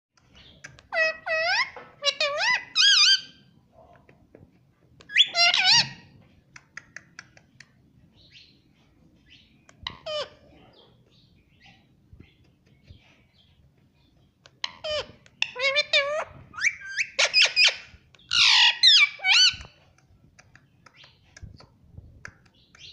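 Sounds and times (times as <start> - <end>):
parrot calling: 0.8 - 3.4, 5.1 - 6.1, 9.8 - 10.5, 14.6 - 19.6
soft clicks: 19.6 - 22.9.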